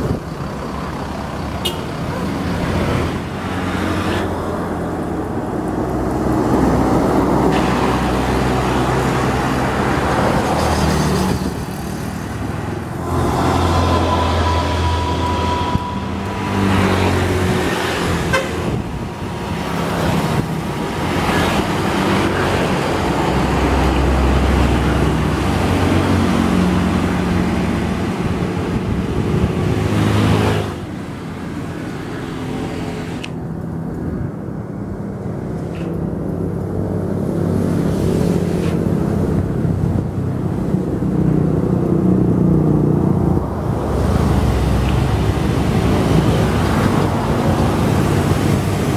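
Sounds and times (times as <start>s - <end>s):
road traffic passing: 0.0s - 48.9s
vehicle horn: 1.6s - 1.9s, 13.4s - 17.5s, 18.2s - 18.8s.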